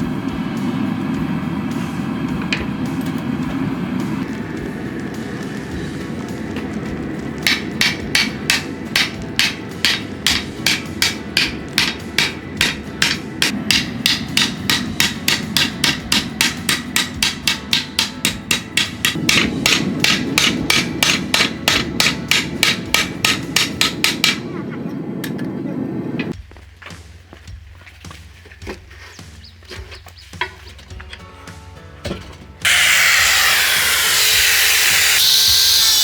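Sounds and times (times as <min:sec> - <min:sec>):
steady low rumble: 0:00.0 - 0:28.5
hammer striking steel: 0:07.4 - 0:24.6, 0:32.6 - 0:36.0.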